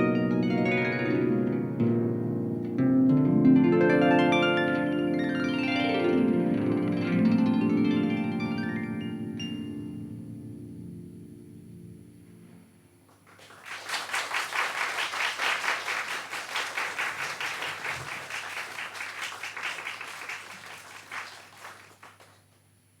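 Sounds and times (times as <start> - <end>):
solo harp: 0.0 - 12.0
audience clapping: 13.1 - 22.6.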